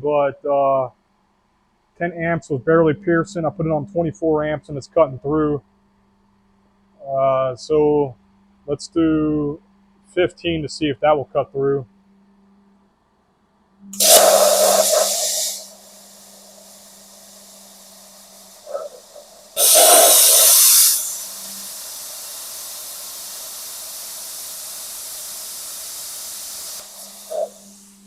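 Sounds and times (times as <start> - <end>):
air hissing: 13.9 - 28.0
plasma cutter arc hissing: 14.0 - 28.0.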